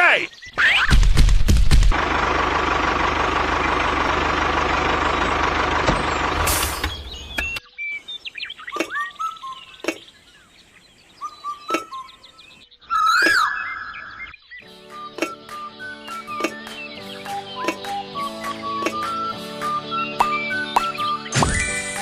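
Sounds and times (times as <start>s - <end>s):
bird chirps: 0.2s - 1.0s, 6.0s - 22.0s.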